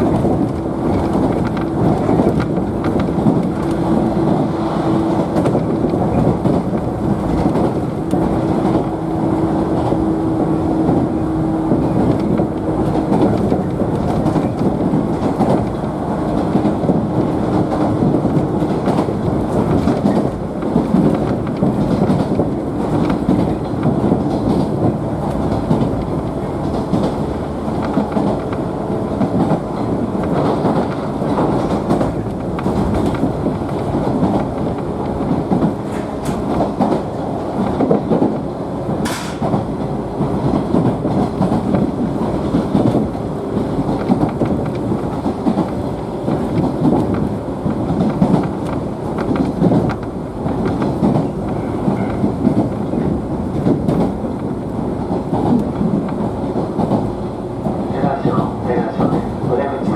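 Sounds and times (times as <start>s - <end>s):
train wheels rumbling on rails: 0.0s - 59.9s
track joint clicks: 11.7s - 57.8s.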